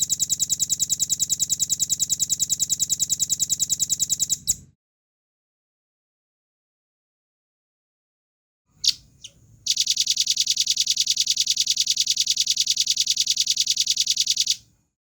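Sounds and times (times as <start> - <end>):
fast bird trill: 8.8 - 14.6.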